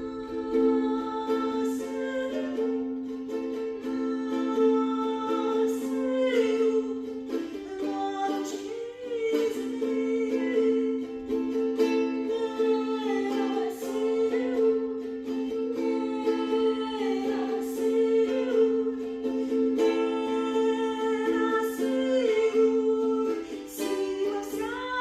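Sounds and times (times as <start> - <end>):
person singing wordless melody: 0.0 - 25.0
plucked strings strummed: 0.0 - 25.0.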